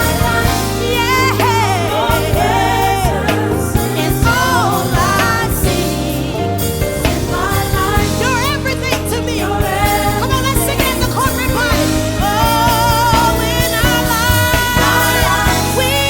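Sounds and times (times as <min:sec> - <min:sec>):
instrumental backing: 0:00.0 - 0:16.0.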